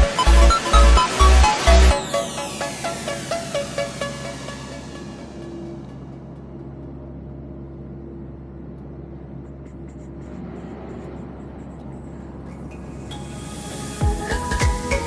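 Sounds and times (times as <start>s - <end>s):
low hum: 0.0s - 15.0s
road and wind noise: 8.7s - 14.0s.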